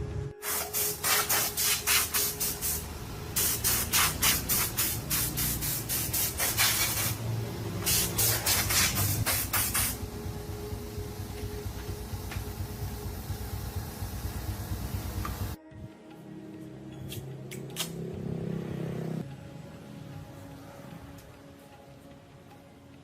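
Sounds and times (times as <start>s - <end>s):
low background hum: 0.0s - 17.1s
hissing spray bursts: 0.4s - 10.1s.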